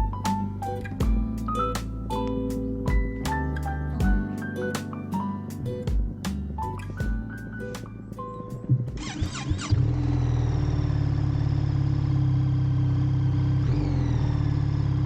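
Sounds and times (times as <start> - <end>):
motorcycle engine starting and idling: 9.0 - 15.0.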